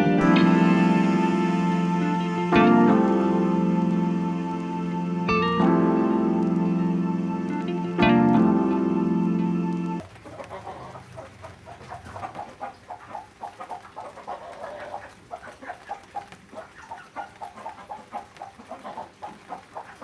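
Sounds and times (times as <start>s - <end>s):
music: 0.0s - 10.0s.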